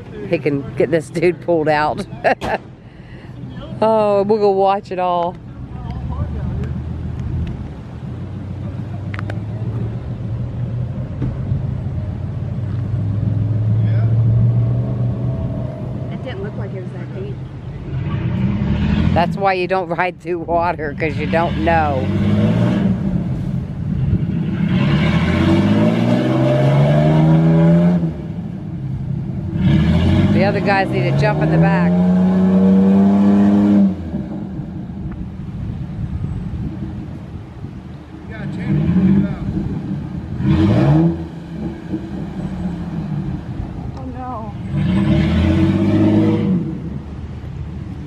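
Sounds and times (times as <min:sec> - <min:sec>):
vehicle engine humming: 0:00.0 - 0:48.0.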